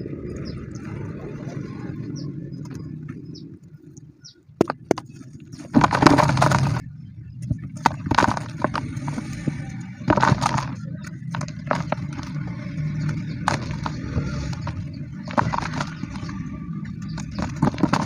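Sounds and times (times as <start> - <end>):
cement chunks crumbling: 4.6 - 6.8, 7.8 - 18.0.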